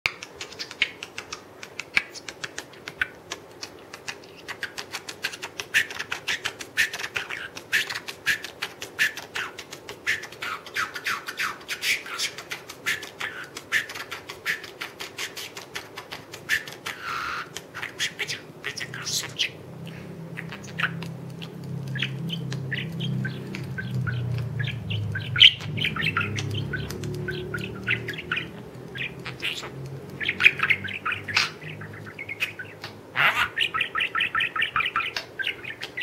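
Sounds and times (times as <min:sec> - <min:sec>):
parrot clicking and chirping: 0:00.1 - 0:36.0
parrot held call: 0:16.5 - 0:19.6, 0:22.0 - 0:36.0.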